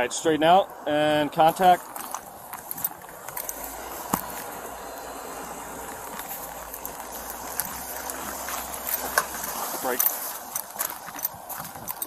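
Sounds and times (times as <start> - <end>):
low car engine hum: 0.0 - 12.0
crunching clicks in snow: 5.9 - 12.0.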